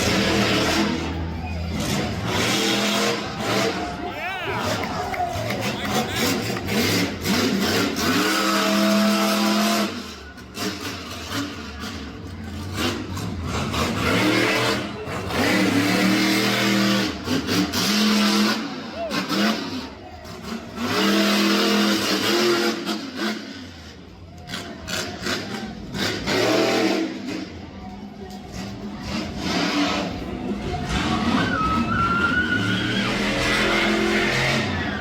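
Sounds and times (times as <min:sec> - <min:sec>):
truck engine revving hard: 0:00.0 - 0:27.7, 0:28.5 - 0:35.0
crowd noise: 0:00.0 - 0:35.0.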